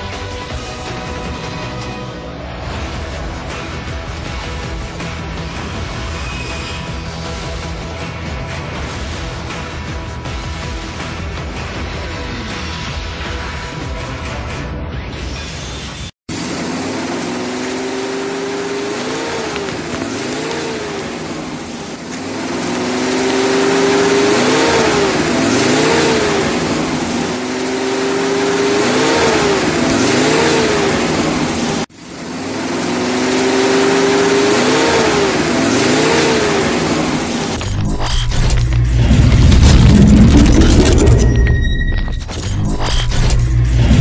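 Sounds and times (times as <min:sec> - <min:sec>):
car engine revving: 0:16.3 - 0:44.0.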